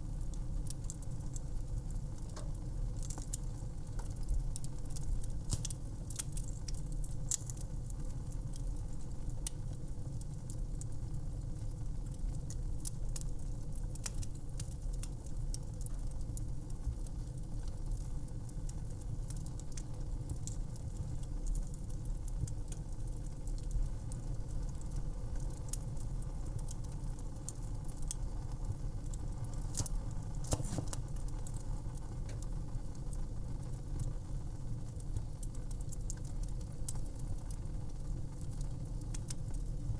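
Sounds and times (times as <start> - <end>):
fireplace fire crackling: 0.0 - 39.9.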